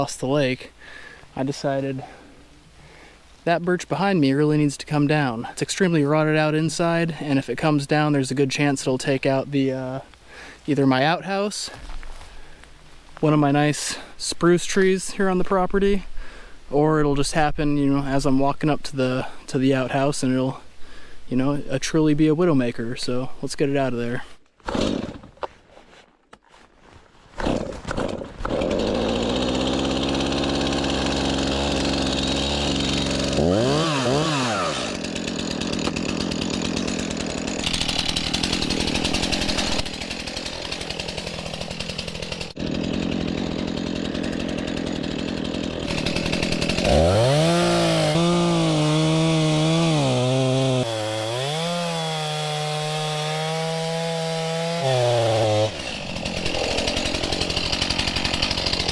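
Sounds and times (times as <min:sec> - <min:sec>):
chainsaw cutting wood: 0:24.6 - 0:25.6, 0:27.4 - 0:58.9.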